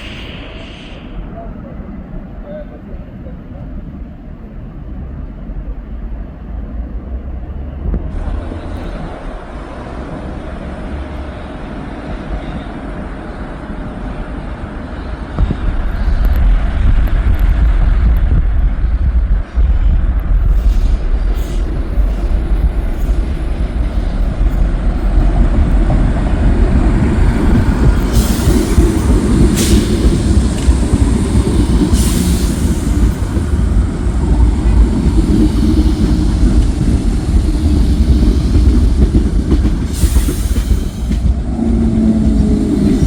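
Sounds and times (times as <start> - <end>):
brief high hisses or squeals: 0.0 - 1.4
train wheels rumbling on rails: 0.0 - 43.0.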